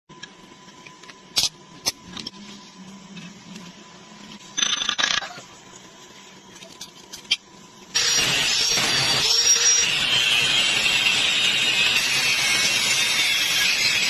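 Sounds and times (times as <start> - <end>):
power tool whining: 7.9 - 14.0.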